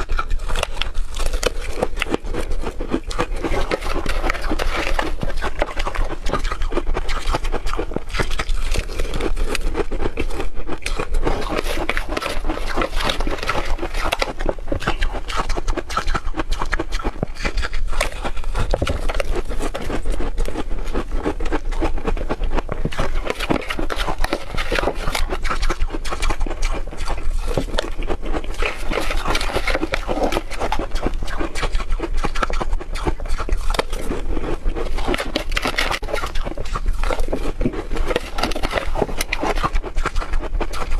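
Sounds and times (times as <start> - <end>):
ice being chewed crunching: 0.0 - 40.9.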